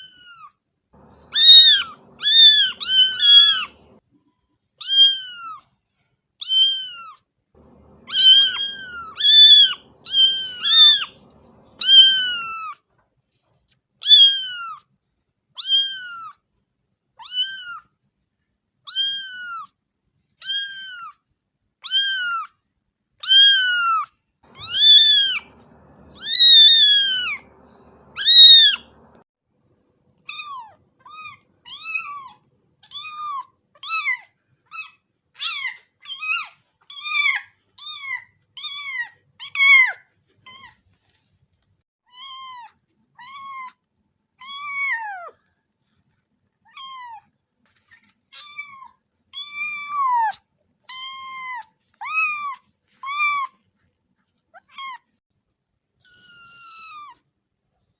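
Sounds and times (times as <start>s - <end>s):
cat meowing: 0.0s - 4.0s, 4.8s - 5.6s, 6.4s - 12.8s, 14.0s - 14.8s, 15.6s - 16.4s, 17.2s - 17.8s, 18.9s - 19.7s, 20.4s - 21.2s, 21.8s - 22.5s, 23.2s - 29.2s, 30.3s - 40.7s, 44.4s - 45.4s, 46.7s - 47.2s, 48.4s - 53.5s, 56.0s - 57.2s.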